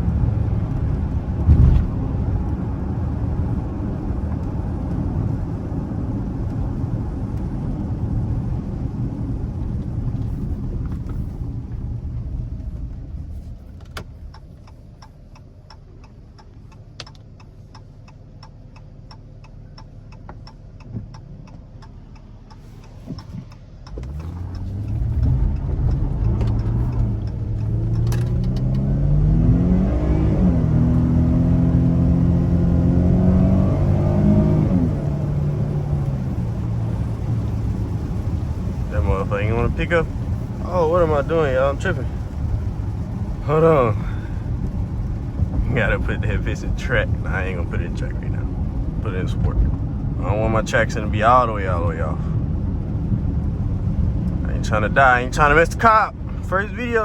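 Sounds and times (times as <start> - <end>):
car engine driving: 0.0 - 57.0
road noise: 0.0 - 57.0
rapid engine ticking: 14.1 - 28.2
engine revving up: 23.9 - 42.8.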